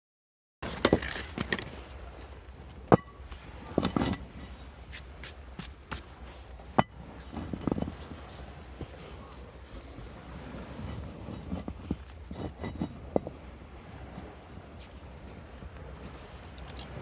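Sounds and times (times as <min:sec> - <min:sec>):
hard objects knocking and clanking: 0:00.6 - 0:01.8.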